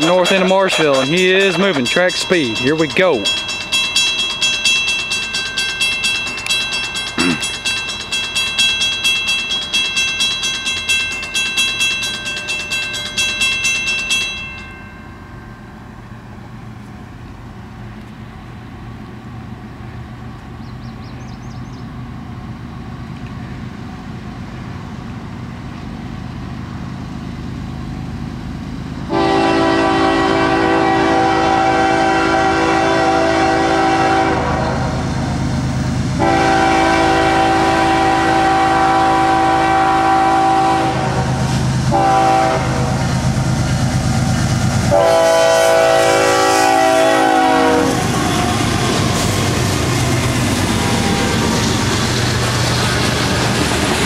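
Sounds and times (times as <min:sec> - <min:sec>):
fast repeating ringing: 0:00.0 - 0:15.4
freight train rumble: 0:00.0 - 0:54.0
locomotive air horn blast: 0:29.1 - 0:35.0, 0:36.2 - 0:43.1, 0:44.9 - 0:48.6.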